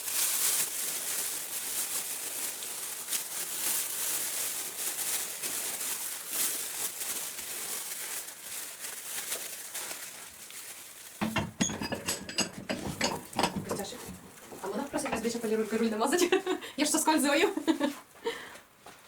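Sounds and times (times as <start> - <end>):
small metallic clinks and knocks: 11.2 - 15.4.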